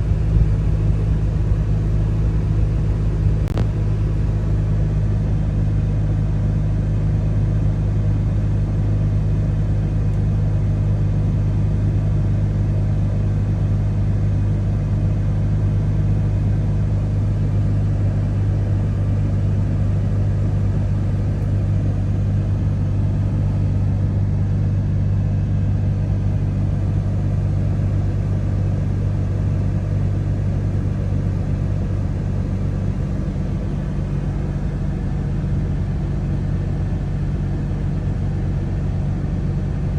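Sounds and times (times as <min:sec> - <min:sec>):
car engine idling: 0:00.0 - 0:07.6, 0:16.2 - 0:39.9.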